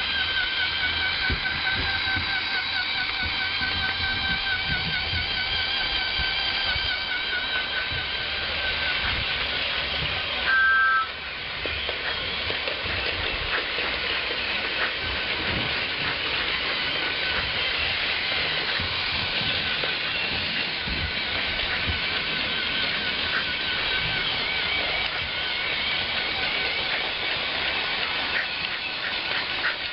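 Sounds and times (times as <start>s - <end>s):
steam hissing: 0.0s - 29.9s
two-note train whistle: 10.4s - 11.3s.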